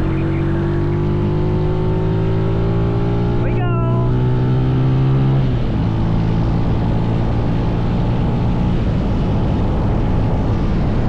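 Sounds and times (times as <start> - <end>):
wind on microphone: 5.5 - 11.0.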